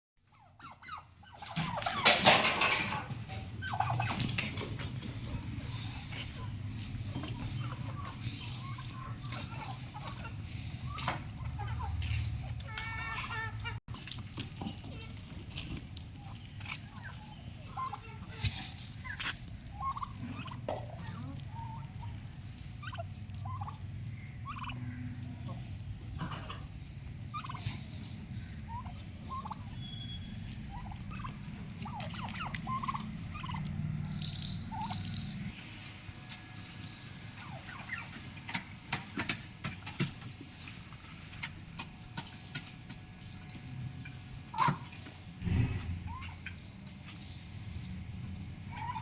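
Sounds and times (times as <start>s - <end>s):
turkey gobbling: 0.3s - 13.8s, 16.6s - 34.1s, 37.2s - 42.6s, 44.0s - 45.1s, 48.6s - 49.0s.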